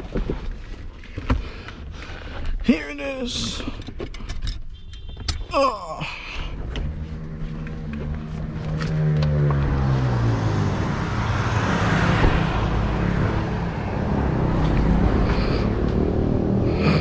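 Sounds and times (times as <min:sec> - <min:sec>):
tyres on road: 0:00.0 - 0:17.0
vehicle engine passing: 0:06.7 - 0:17.0.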